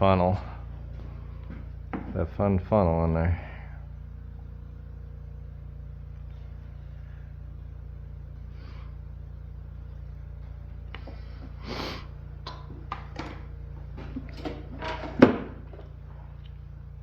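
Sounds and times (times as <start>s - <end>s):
low hum: 0.0s - 17.0s
tools and parts clicking and rattling: 14.0s - 15.9s.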